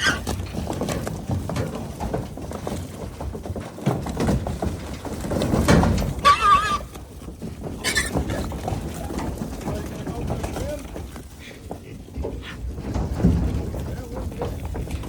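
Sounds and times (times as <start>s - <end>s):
hogs grunting: 0.0s - 0.4s
hog squealing: 6.2s - 6.9s.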